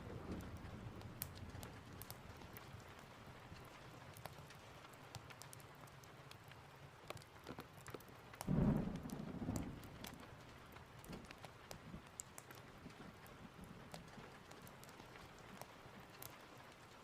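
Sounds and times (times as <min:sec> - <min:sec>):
low rumble of thunder: 0:00.0 - 0:02.7, 0:08.4 - 0:12.1
steady rain: 0:00.0 - 0:17.0
wood fire crackling: 0:00.0 - 0:17.0.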